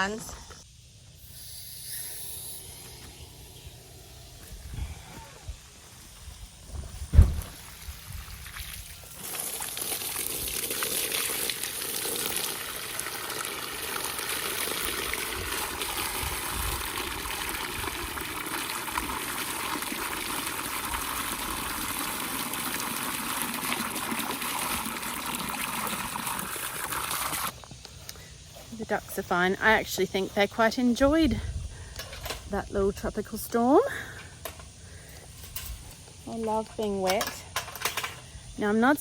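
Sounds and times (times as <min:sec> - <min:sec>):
dull thump: 0:06.7 - 0:07.7
water running: 0:07.6 - 0:27.5.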